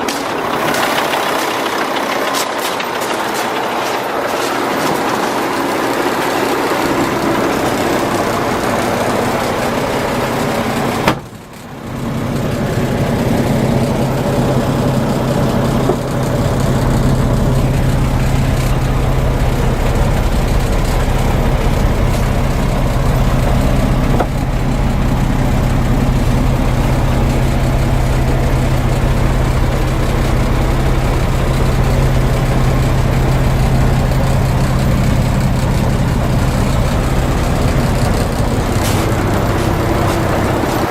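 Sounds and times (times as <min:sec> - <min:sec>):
diesel truck engine idling: 0:00.0 - 0:40.9.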